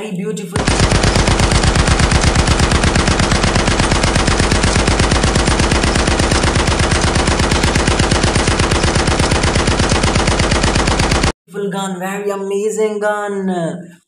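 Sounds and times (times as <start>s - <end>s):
toy gun machine-gun sound effect: 0.6s - 11.3s.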